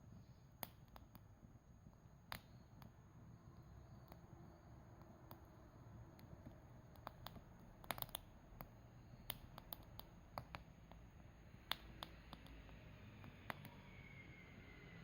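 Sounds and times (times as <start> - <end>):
campfire crackling: 5.3 - 10.7.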